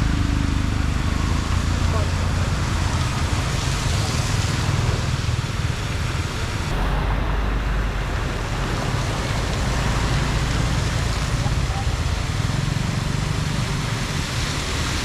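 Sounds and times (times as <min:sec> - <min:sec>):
floodwater rushing into drain: 0:06.7 - 0:15.0.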